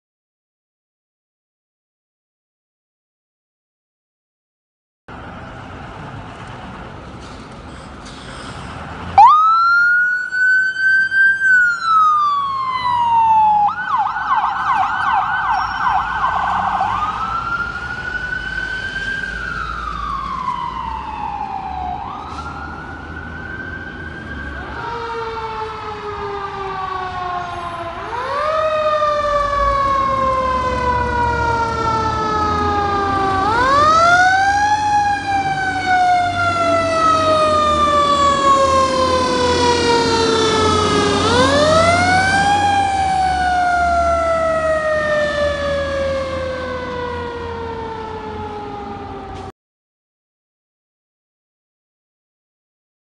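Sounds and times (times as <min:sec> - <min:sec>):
engine rumble: 0:05.1 - 0:49.5
second lower siren: 0:09.2 - 0:49.5
siren wailing and yelping: 0:09.2 - 0:49.5.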